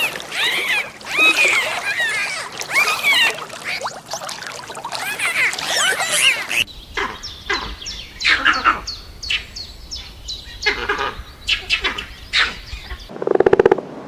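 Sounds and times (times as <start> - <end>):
birds chirping: 4.9 - 13.1.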